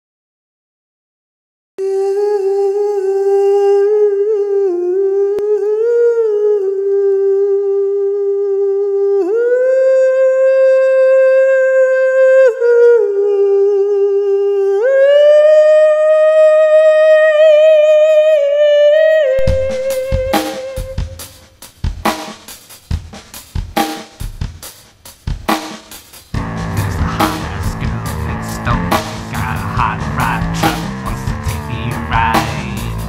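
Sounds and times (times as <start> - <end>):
person humming long notes: 1.8 - 21.3, 26.4 - 33.0.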